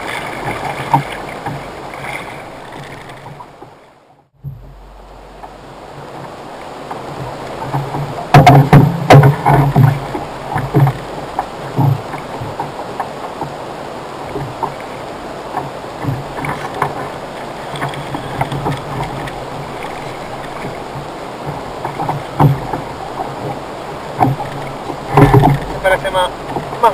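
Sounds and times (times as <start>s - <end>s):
knocks and bumps on a kayak: 0.0s - 26.9s
steady low background noise: 4.1s - 7.6s.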